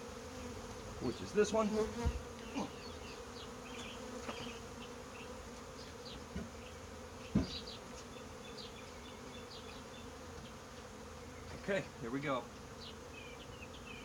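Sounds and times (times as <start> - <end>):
honeybees buzzing: 0.0 - 14.0
light knocks: 7.3 - 7.6.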